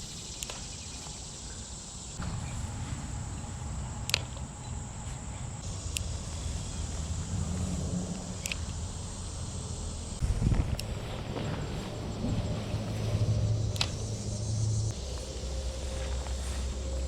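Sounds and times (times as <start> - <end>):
low outdoor rumble: 2.2 - 17.0
sharp clicks: 4.0 - 4.4, 5.9 - 6.2, 8.2 - 8.8
high-pitched insect buzz: 11.7 - 17.0.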